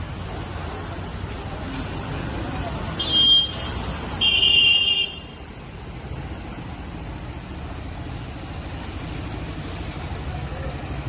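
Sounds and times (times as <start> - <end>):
heavy rain: 0.0 - 11.0
road noise: 0.0 - 11.0
vehicle horn honk: 3.0 - 5.3.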